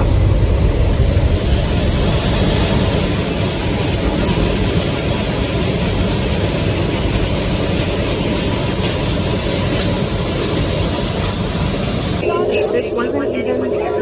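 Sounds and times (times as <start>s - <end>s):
aircraft engine noise: 0.0s - 14.0s.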